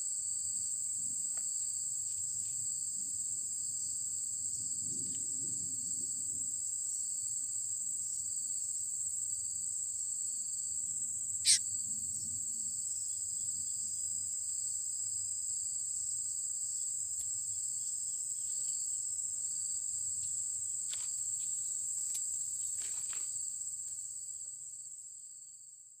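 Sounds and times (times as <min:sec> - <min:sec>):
insects droning: 0:00.0 - 0:25.8.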